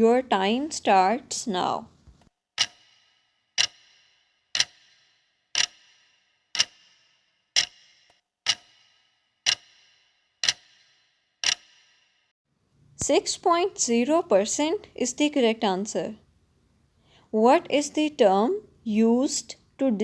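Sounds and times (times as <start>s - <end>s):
clock ticking with metallic ring: 2.6s - 12.1s.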